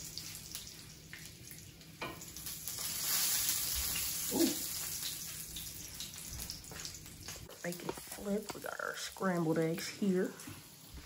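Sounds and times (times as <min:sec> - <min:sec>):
bacon and eggs sizzling: 0:00.0 - 0:11.0.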